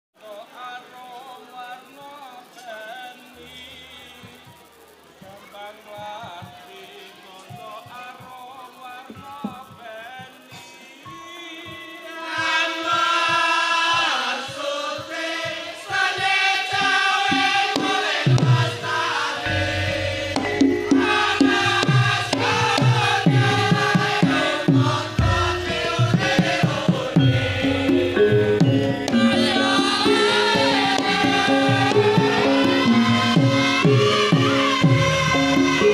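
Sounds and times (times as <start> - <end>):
person singing: 5.2 - 35.9
drums and low beats: 9.1 - 10.7, 11.7 - 35.9
melodic instruments: 17.3 - 35.9.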